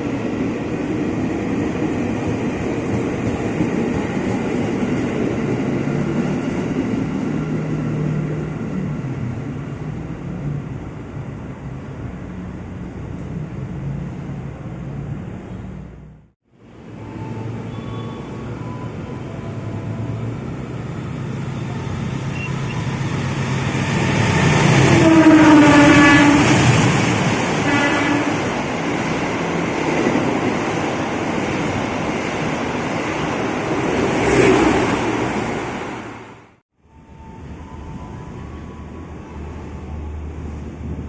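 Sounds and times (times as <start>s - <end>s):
train rumbling past: 0.0s - 41.0s
train horn: 24.5s - 26.8s, 27.5s - 28.6s.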